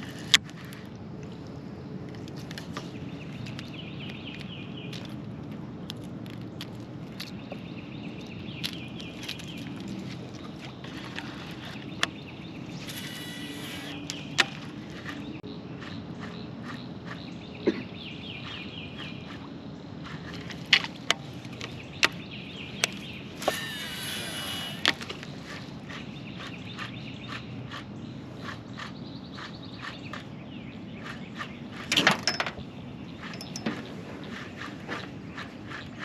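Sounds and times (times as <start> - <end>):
birds chirping: 0.0 - 36.0
buzzy bird calls: 7.3 - 32.0
sharp clicks and knocks: 31.1 - 33.9.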